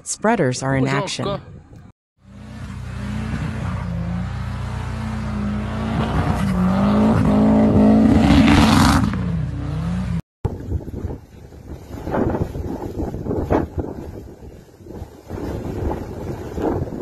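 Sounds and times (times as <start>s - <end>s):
vehicle engine revving: 2.2s - 10.2s
wind noise: 10.4s - 17.0s.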